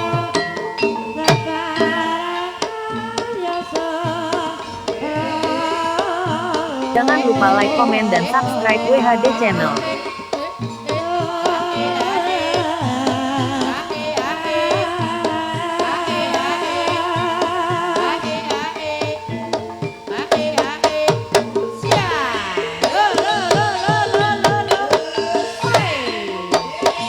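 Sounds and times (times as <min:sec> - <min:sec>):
wavering melody with vibrato: 0:00.0 - 0:13.1
hand drums playing: 0:00.0 - 0:27.0
sustained gamelan tones: 0:00.0 - 0:27.0.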